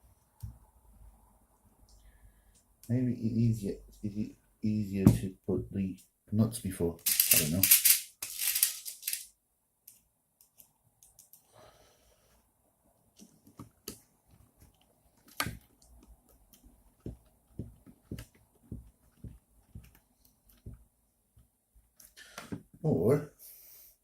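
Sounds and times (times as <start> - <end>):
rustling: 7.0 - 9.3.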